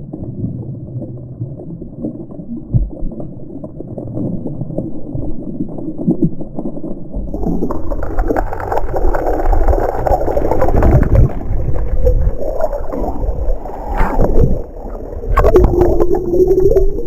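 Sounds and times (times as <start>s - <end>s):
water sloshing against microphone: 7.2s - 17.0s.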